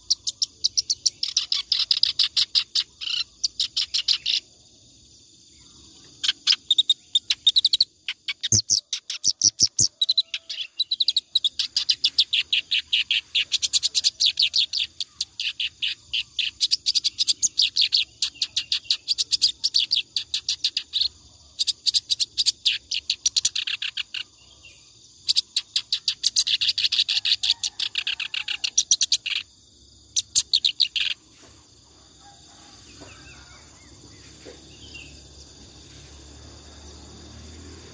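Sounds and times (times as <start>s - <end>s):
reed warbler singing: 0.0s - 4.5s, 6.0s - 24.6s, 25.2s - 29.5s, 30.1s - 31.3s
faint insect-like hiss: 0.0s - 37.9s.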